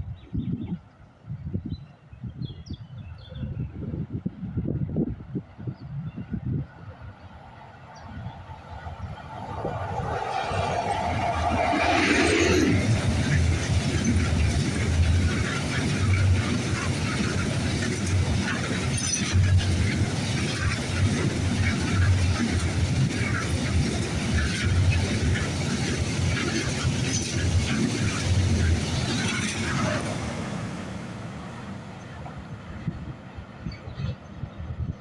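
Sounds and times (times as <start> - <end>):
freight train wagons clattering: 10.2 - 32.4.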